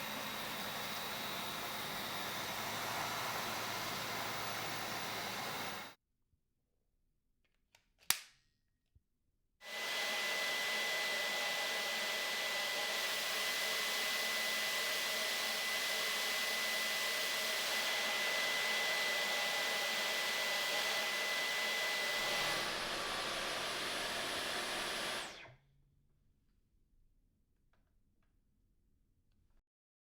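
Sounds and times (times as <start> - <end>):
vacuum cleaner whining: 0.0 - 6.0, 9.6 - 25.6.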